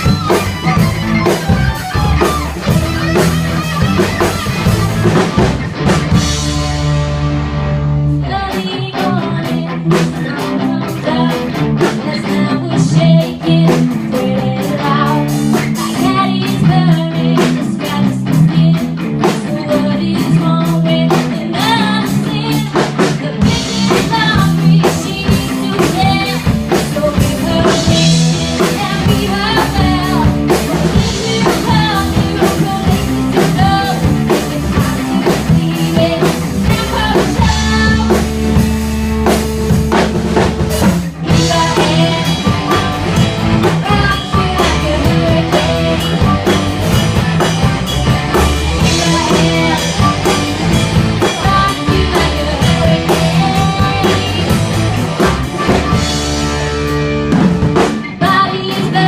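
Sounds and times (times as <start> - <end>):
drum kit beat: 0.0 - 7.8, 8.5 - 59.0
electric guitar: 0.0 - 59.0
person singing: 8.1 - 38.6, 40.8 - 47.0, 48.3 - 54.8, 58.1 - 59.0.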